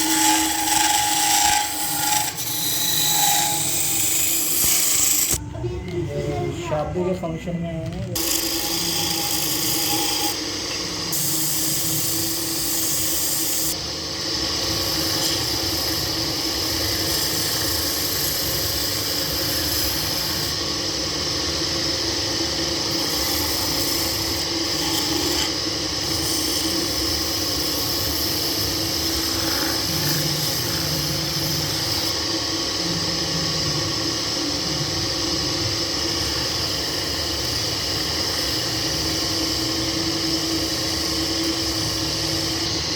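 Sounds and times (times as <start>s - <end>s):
turning tool scraping workpiece: 0.0s - 5.4s, 8.0s - 20.6s, 22.2s - 32.8s
lathe humming: 0.0s - 42.9s.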